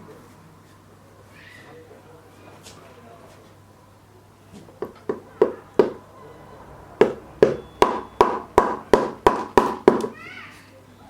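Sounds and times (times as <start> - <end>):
hammer blows ringing: 5.1 - 10.2.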